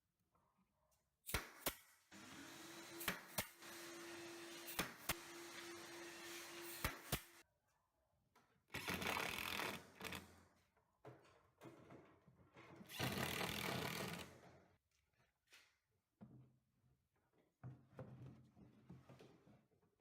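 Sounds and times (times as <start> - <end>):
power tool buzzing on wood: 2.2 - 7.4.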